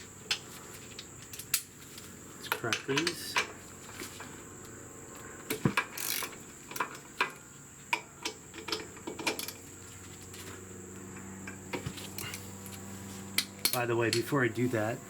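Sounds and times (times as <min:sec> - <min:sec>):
wrench clicking on metal bolts: 0:02.4 - 0:03.5, 0:05.5 - 0:09.6, 0:13.4 - 0:14.3.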